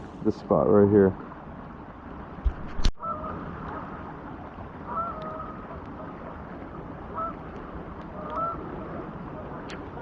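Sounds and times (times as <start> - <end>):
duck honking calls: 4.9 - 5.6, 7.2 - 7.4, 8.2 - 8.7.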